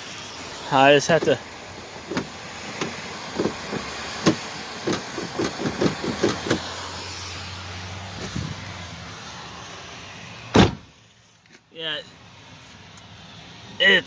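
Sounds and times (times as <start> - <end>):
car door latch clicking and clunking: 2.1 - 6.7, 10.6 - 10.8.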